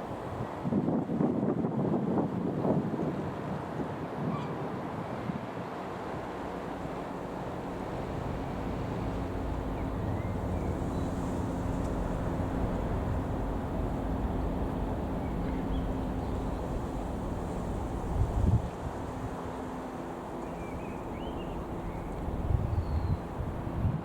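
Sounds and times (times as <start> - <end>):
wind rumble on microphone: 0.0 - 19.6, 20.3 - 24.0
light aircraft engine droning: 4.8 - 24.0.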